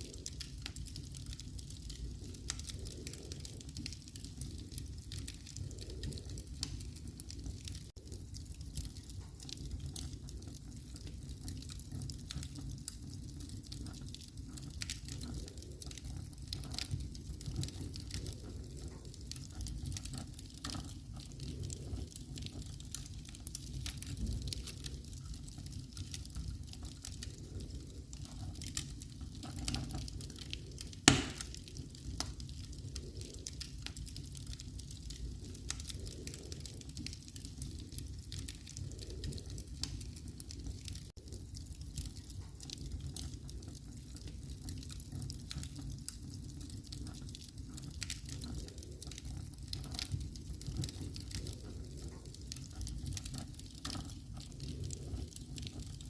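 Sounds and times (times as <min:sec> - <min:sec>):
wood fire crackling: 0:00.0 - 0:56.0
sharp loud pop: 0:31.1 - 0:31.4.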